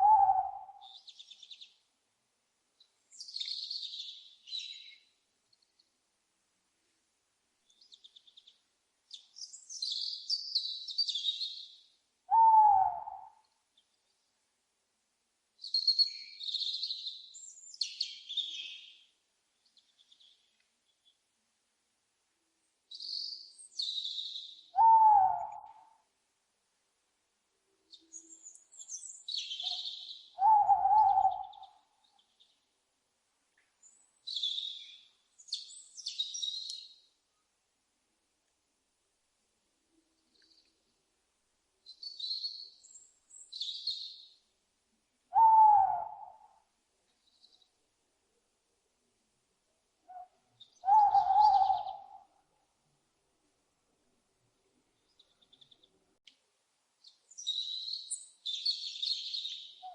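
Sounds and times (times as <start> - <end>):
owl hoot: 0.0 - 1.0, 12.3 - 13.4, 24.7 - 25.9, 29.6 - 31.8, 45.3 - 46.6, 50.1 - 52.3
owl high chattering calls: 12.3 - 13.4, 24.8 - 25.8, 29.5 - 31.7, 45.3 - 46.5, 50.1 - 52.3
owl screeching: 30.4 - 31.5, 45.4 - 46.4, 50.8 - 52.1.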